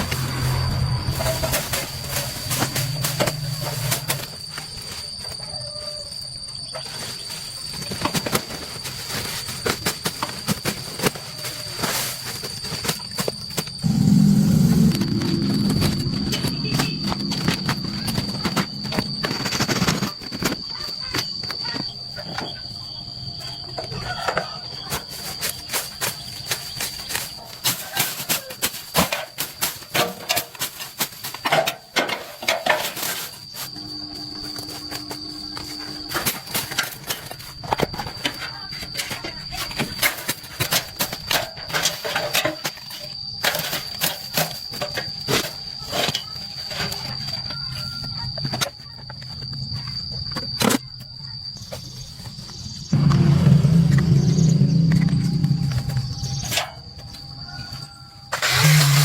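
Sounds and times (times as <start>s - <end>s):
steady high whine: 0.0s - 5.4s, 13.6s - 23.9s, 33.6s - 38.4s, 51.9s - 59.0s
insect chirring: 0.0s - 59.0s.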